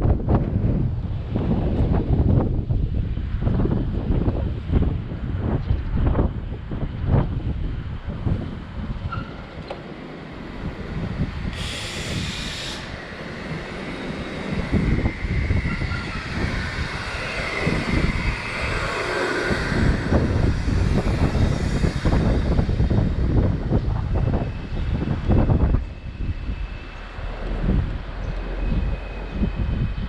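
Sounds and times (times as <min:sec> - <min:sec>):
road rumble: 0:00.0 - 0:30.0
wind buffeting microphone: 0:00.0 - 0:30.0
brief hiss: 0:11.5 - 0:13.0.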